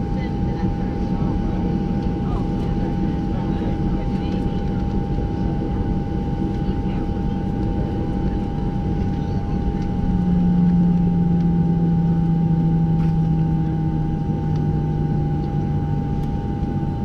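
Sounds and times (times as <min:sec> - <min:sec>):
aircraft cabin rumble: 0:00.0 - 0:17.0
constant high whines: 0:00.0 - 0:17.0
low hum sinking in pitch: 0:00.0 - 0:17.0.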